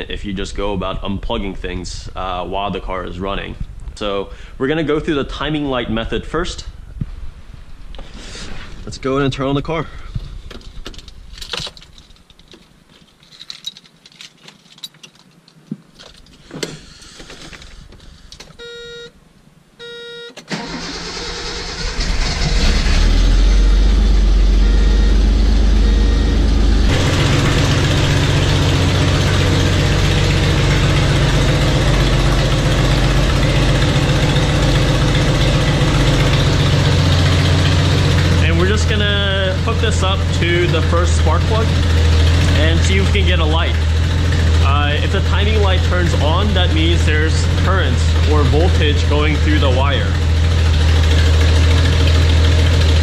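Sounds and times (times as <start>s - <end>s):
short beeps: 18.6s - 19.1s, 19.8s - 20.4s, 23.5s - 26.5s
engine starter cranking: 20.4s - 25.0s, 26.9s - 38.8s, 48.8s - 53.0s
car engine idling: 20.5s - 53.0s.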